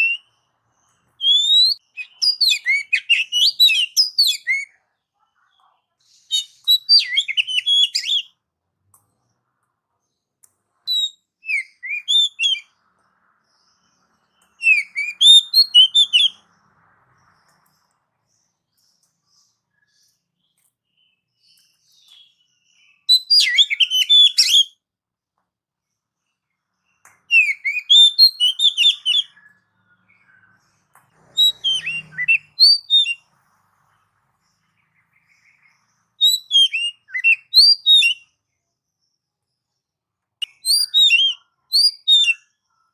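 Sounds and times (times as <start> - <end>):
bird singing whistled notes: 0.0 - 4.8, 6.2 - 8.4, 10.8 - 12.8, 13.4 - 16.6, 17.2 - 24.8, 26.8 - 33.3, 34.4 - 38.4, 40.4 - 42.7.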